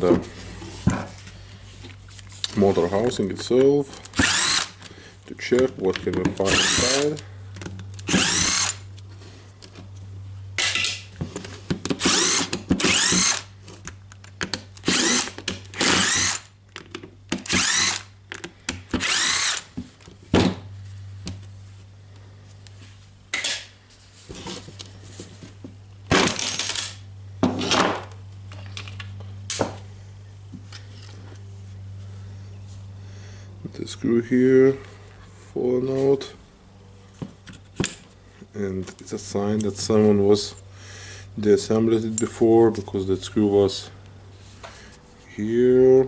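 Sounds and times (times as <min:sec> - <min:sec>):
steady low hum: 0:00.0 - 0:46.0
electric screwdriver whine: 0:04.2 - 0:04.8, 0:06.5 - 0:07.0, 0:08.0 - 0:08.8, 0:12.0 - 0:13.5, 0:14.8 - 0:16.5, 0:17.5 - 0:18.1, 0:19.0 - 0:19.7.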